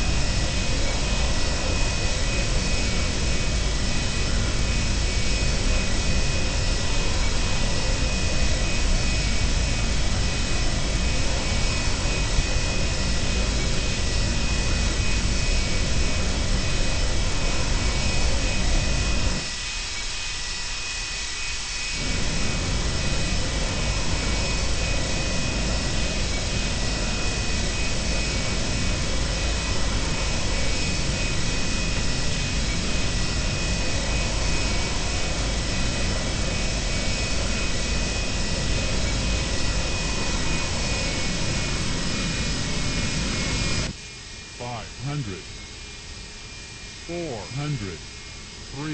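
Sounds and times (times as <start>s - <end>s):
jet engines rushing with high whine: 0.0s - 48.9s.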